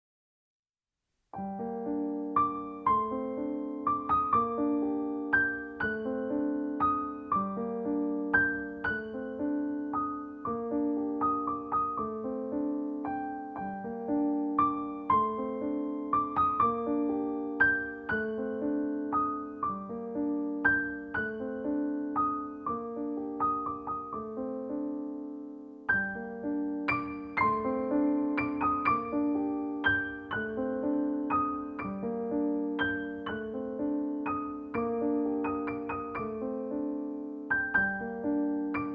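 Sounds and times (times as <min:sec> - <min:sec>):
piano music: 0:01.4 - 0:38.9.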